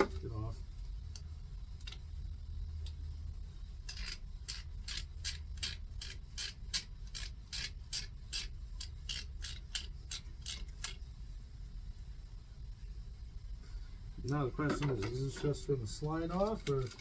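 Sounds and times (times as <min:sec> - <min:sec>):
hand ratchet clicking: 0:03.9 - 0:11.0.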